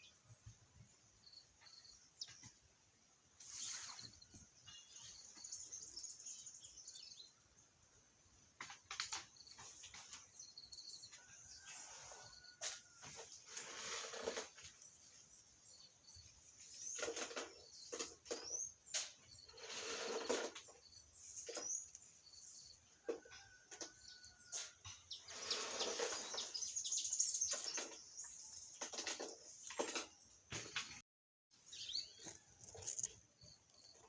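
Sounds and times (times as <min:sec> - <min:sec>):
kitten rustling and scratching: 0:08.6 - 0:30.1, 0:32.1 - 0:34.0.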